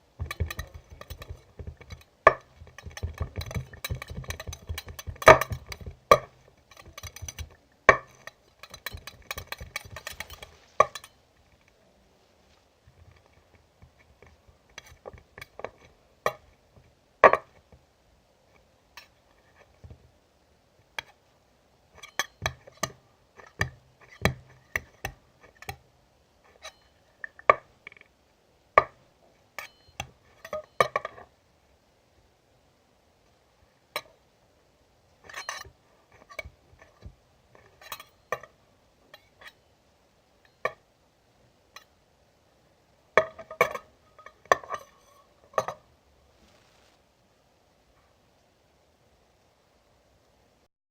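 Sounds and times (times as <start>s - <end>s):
hard objects clinking: 0.2s - 11.2s.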